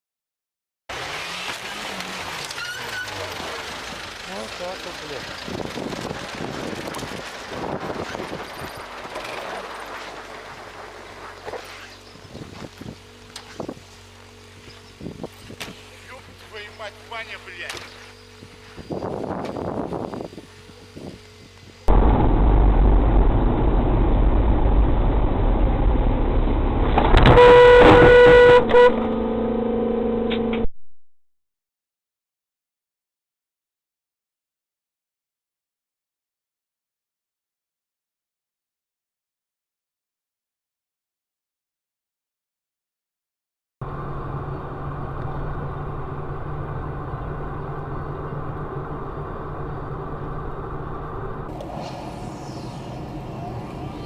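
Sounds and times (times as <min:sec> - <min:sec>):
vehicle road and engine rumble: 0:00.9 - 0:29.6, 0:43.8 - 0:54.0
low hum: 0:19.9 - 0:30.7
car horn honking: 0:27.2 - 0:30.7
low steady tone: 0:28.7 - 0:30.7.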